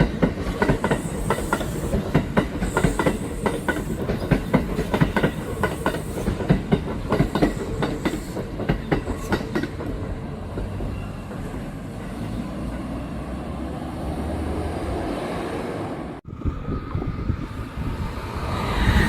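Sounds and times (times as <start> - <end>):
train wheels clattering over rail joints: 0.0 - 12.4
train rumble: 0.0 - 19.0.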